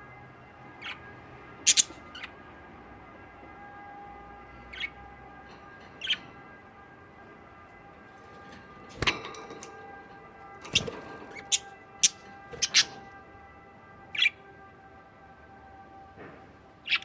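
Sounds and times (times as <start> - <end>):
budgerigars chirping: 0.8 - 2.4, 4.7 - 5.0, 5.8 - 6.3, 10.7 - 13.1, 14.1 - 14.4.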